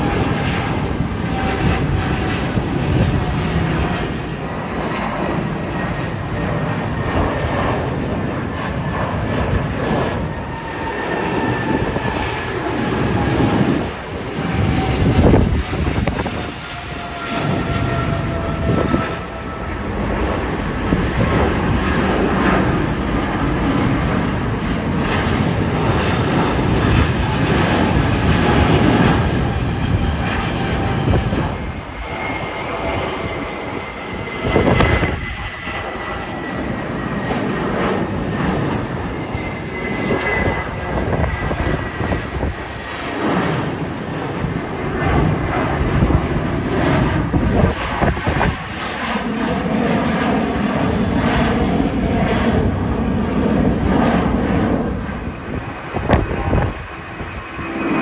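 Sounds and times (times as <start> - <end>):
engine roar: 0.0 - 58.0
faint high whine: 18.1 - 27.6.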